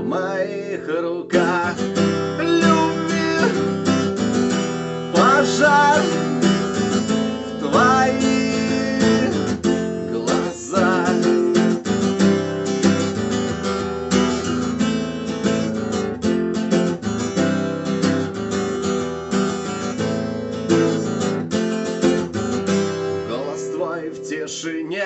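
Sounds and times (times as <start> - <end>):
guitar strumming chords: 0.0 - 25.0.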